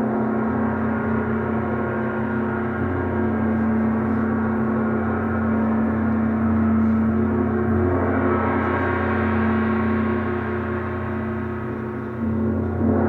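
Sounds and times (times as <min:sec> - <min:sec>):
gong shimmering: 0:00.0 - 0:13.0
low hum: 0:00.0 - 0:13.0.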